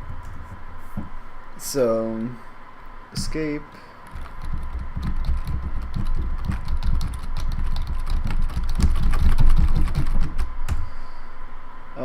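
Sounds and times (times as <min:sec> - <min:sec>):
keyboard keys clicking: 0:04.1 - 0:10.8.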